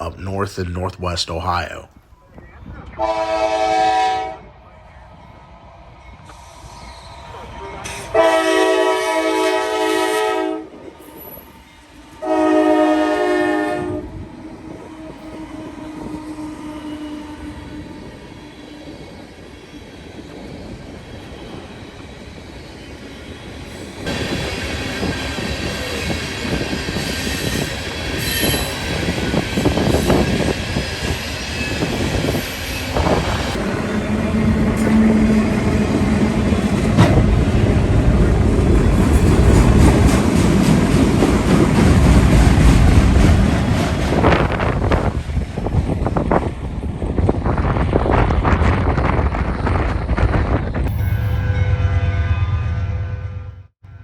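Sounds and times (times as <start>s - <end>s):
rail and wheel noise: 0.0s - 54.0s
train rumbling: 0.0s - 54.0s
train horn blasts: 3.0s - 4.5s, 8.1s - 11.4s, 12.2s - 18.1s, 50.9s - 54.0s.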